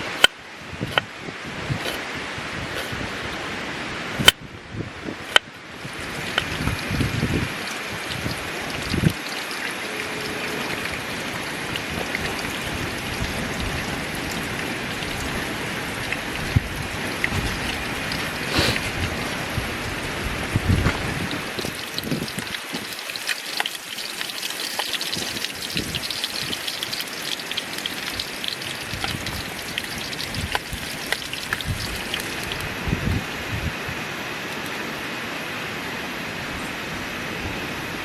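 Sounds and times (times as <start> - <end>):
wind buffeting microphone: 0.6 - 9.2, 10.3 - 23.0, 25.1 - 27.0, 28.4 - 34.0.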